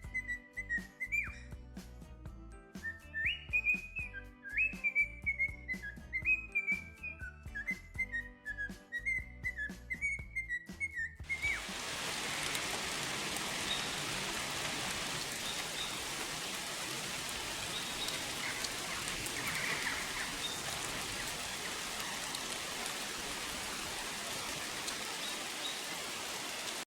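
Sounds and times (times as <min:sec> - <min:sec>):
steady rain: 0:11.3 - 0:26.9.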